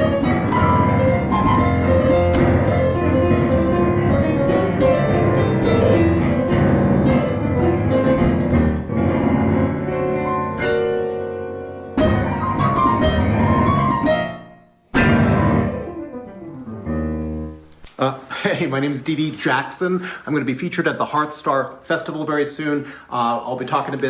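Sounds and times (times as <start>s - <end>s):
piano chords: 0.0s - 17.8s.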